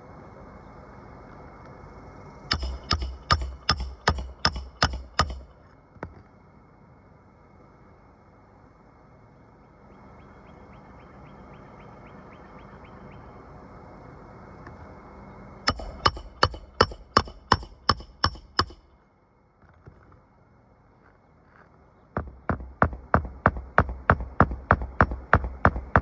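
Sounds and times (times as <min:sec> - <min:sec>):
hammer blows: 0:02.5 - 0:05.5, 0:15.7 - 0:18.9.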